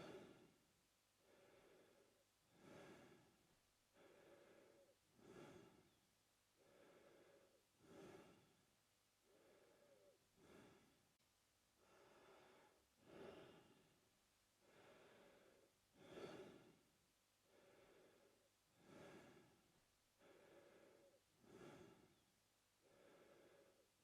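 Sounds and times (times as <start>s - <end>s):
man breathing through mouth: 1.2s - 3.3s, 4.0s - 6.0s, 6.6s - 8.6s, 9.3s - 11.0s, 11.8s - 13.8s, 14.6s - 16.8s, 17.5s - 19.6s, 20.2s - 22.2s.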